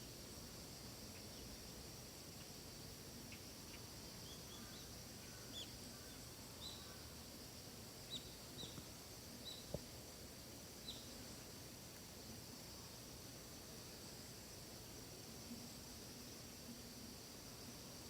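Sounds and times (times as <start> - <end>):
steady high hiss: 0.0 - 18.0
small bird chirping: 8.1 - 8.8, 9.4 - 9.8, 10.8 - 11.1.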